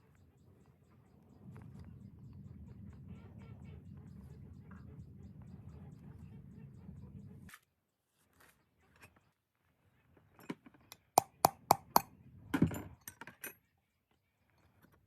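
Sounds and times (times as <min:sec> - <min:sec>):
low steady hum: 0:00.0 - 0:07.5
sharp knocks: 0:11.2 - 0:12.1.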